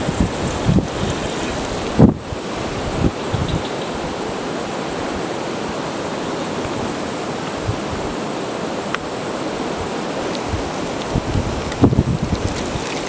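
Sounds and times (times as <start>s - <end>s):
wind buffeting microphone: 0.0s - 5.4s, 6.6s - 8.2s, 9.6s - 13.0s
strong wind: 0.0s - 13.0s
surf on a beach: 0.0s - 13.0s.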